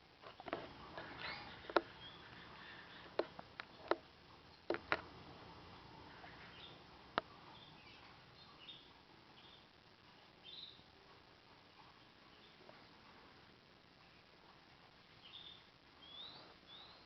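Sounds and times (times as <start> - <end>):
canaries chirping: 0.3 - 17.0
sharp clicks and taps: 4.7 - 5.1.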